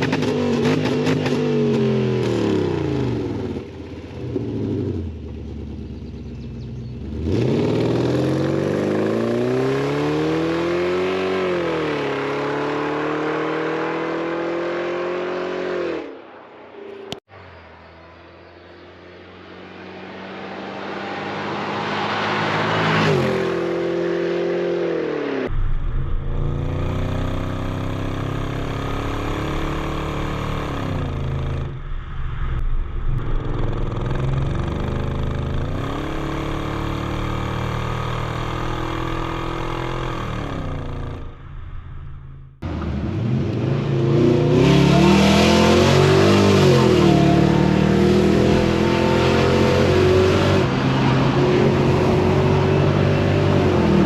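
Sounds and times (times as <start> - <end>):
car engine revving and idling: 18.4 - 32.0, 32.6 - 54.0.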